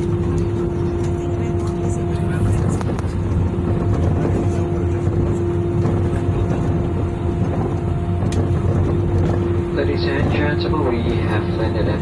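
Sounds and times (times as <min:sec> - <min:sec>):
aircraft cabin rumble: 0:00.0 - 0:12.0
constant hum: 0:00.0 - 0:12.0.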